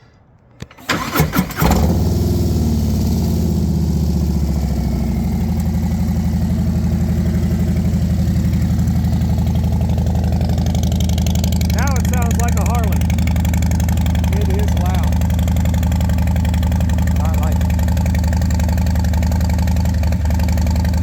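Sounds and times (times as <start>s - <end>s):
motorcycle starter cranking: 0.6s - 2.5s
motorcycle engine idling loudly: 1.8s - 21.0s.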